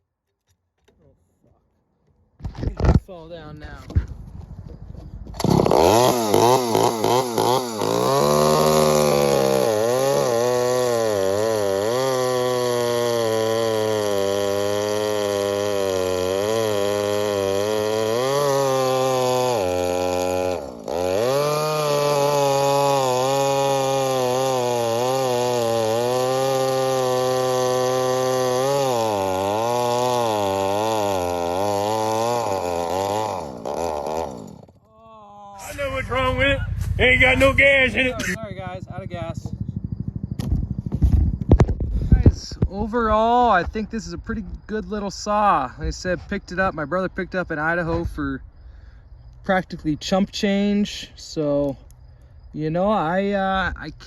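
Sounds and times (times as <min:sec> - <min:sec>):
chainsaw revving: 0:05.4 - 0:34.9, 0:35.6 - 0:42.1.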